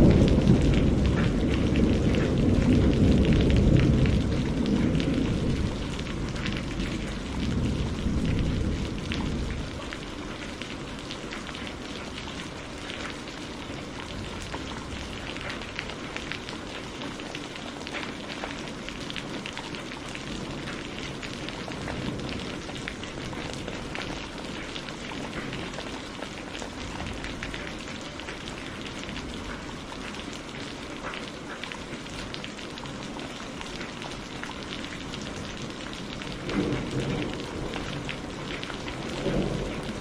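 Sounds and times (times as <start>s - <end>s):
thunder rumble: 0.0s - 13.1s, 20.2s - 29.6s, 35.4s - 40.0s
heavy rain: 0.0s - 40.0s.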